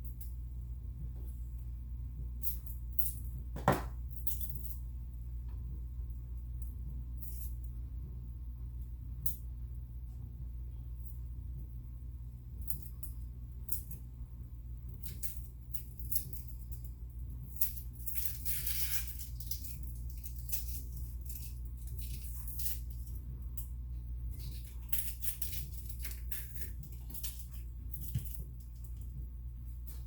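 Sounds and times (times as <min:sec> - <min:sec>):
steady low hum: 0:00.0 - 0:30.0
objects handled clicking and rustling: 0:17.5 - 0:23.7, 0:24.4 - 0:29.2.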